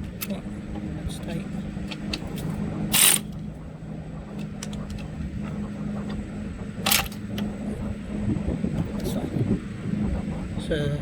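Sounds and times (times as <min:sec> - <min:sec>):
steady low hum: 0:00.0 - 0:11.0
ratchet wrench rasping: 0:02.9 - 0:03.3.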